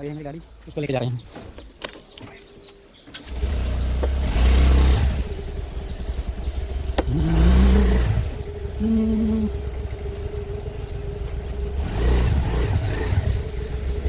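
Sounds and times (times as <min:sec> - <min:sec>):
vehicle engine starting and revving: 0:02.9 - 0:14.0.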